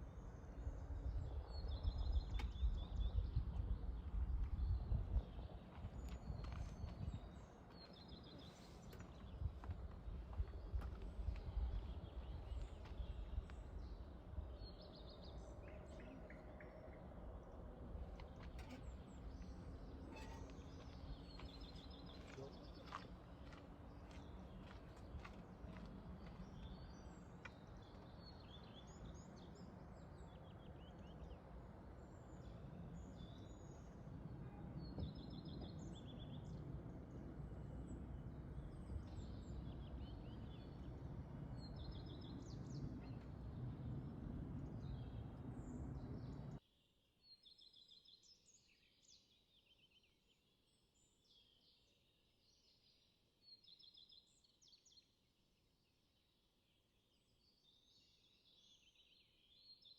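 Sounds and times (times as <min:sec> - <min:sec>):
small birds singing: 0:00.0 - 0:55.2, 0:55.8 - 0:59.9
low rumbling noise: 0:33.7 - 0:46.6.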